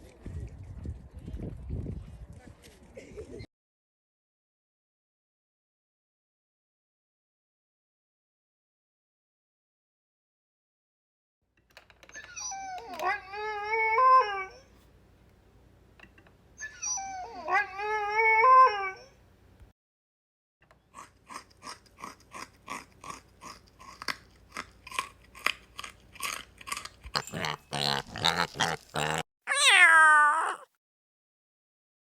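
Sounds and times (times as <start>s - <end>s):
dog whining: 12.1s - 14.8s, 16.6s - 19.2s, 29.5s - 30.7s.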